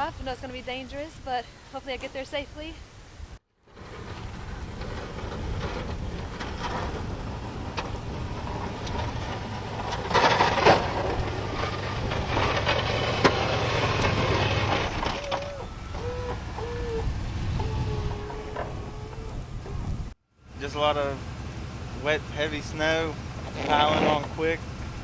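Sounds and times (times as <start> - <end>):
vehicle engine rumble: 3.3 - 25.0
tyres on slush: 3.7 - 19.1, 22.0 - 25.0.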